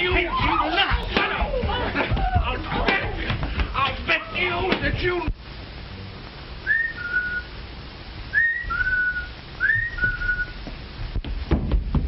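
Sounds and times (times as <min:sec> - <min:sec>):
film soundtrack hiss: 0:00.0 - 0:12.0
person whistling a two-note call: 0:06.6 - 0:07.5, 0:08.3 - 0:10.6.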